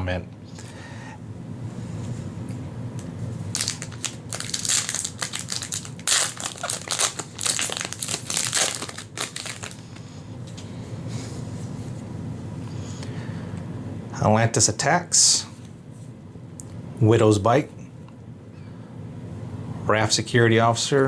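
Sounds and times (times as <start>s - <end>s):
foil wrapper crinkling: 3.4s - 10.1s.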